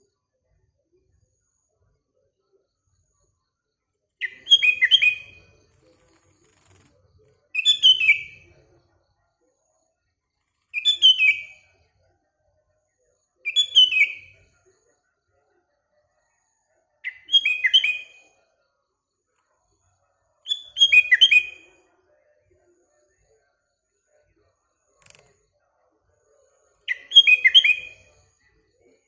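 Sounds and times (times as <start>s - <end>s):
bird singing whistled notes: 4.2s - 5.5s, 7.6s - 8.5s, 10.7s - 11.6s, 13.4s - 14.4s, 17.0s - 18.3s, 20.4s - 21.7s, 26.8s - 28.2s.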